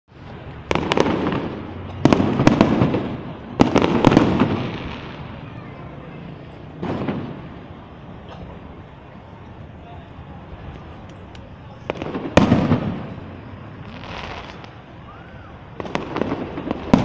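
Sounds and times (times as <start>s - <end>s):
firework shells bursting: 10.5s - 14.9s.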